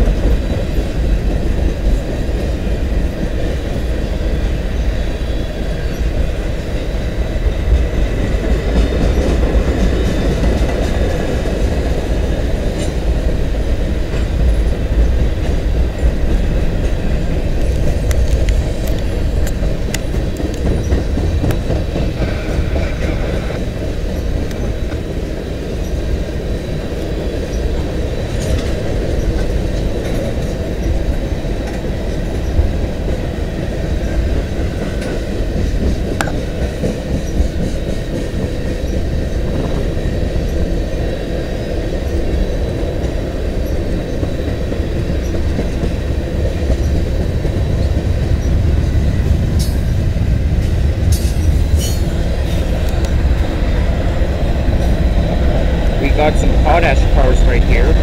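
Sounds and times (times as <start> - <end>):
freight train rumbling past: 0.0 - 58.0
wheels clicking over rail joints: 7.4 - 26.1.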